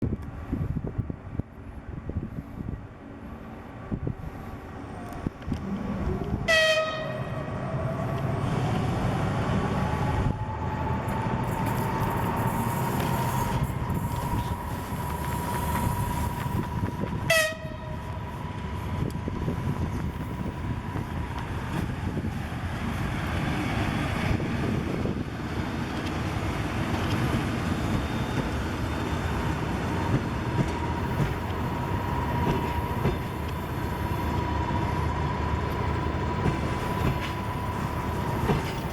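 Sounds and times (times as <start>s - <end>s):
locomotive whine: 1.8s - 38.9s
locomotive horn toots: 6.4s - 7.5s, 17.2s - 18.0s
train wheels clacking on rails: 25.8s - 34.8s, 35.7s - 38.9s.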